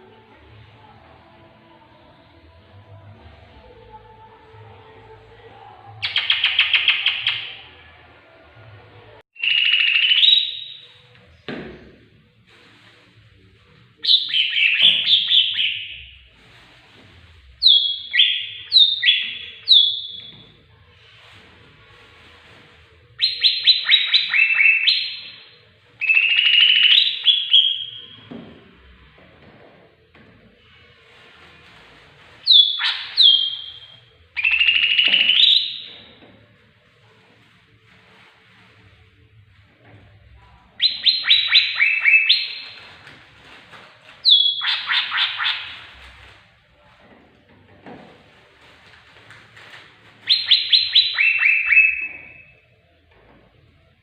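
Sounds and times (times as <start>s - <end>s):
rapidly pulsing bird call: 32.5s - 35.9s, 40.8s - 42.8s, 44.2s - 45.9s, 50.3s - 52.4s.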